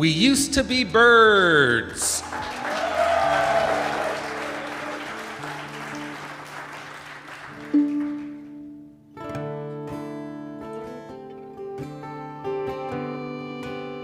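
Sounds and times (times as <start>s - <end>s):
audience applause: 2.1s - 8.5s
acoustic guitar strumming: 3.7s - 14.0s.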